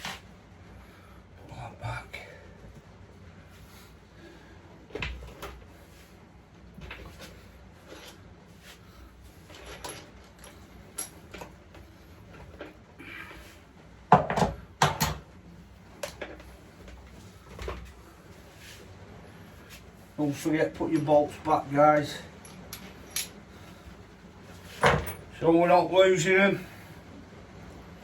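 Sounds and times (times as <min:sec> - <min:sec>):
knocks and clatter of tools: 0:14.1 - 0:15.3, 0:24.8 - 0:25.3.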